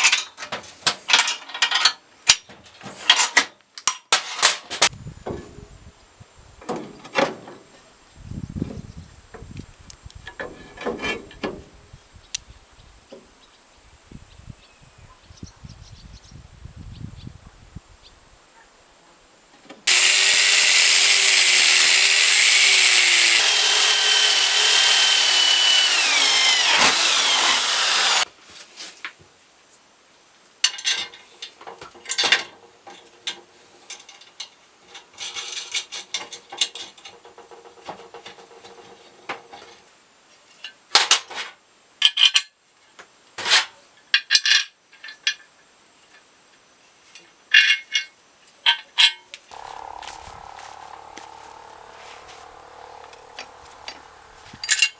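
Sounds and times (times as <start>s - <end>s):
power tool whining: 19.9s - 28.3s, 49.5s - 54.9s.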